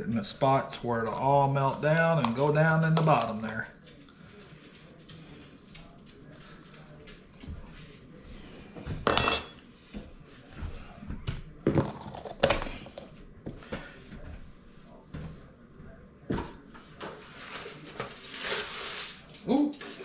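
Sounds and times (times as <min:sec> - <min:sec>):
dishes and utensils clinking: 0:08.8 - 0:09.7.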